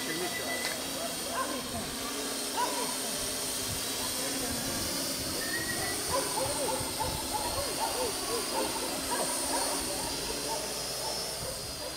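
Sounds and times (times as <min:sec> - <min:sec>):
faint high whine: 0:00.0 - 0:11.9
wind hiss on microphone: 0:03.1 - 0:08.3
faint rising and falling chirps: 0:05.4 - 0:06.1.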